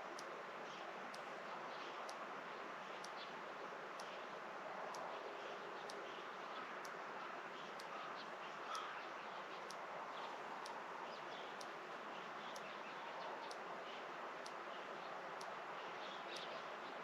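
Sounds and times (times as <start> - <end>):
faint high tick: 4.9 - 5.2
faint bird chirps: 7.6 - 11.7.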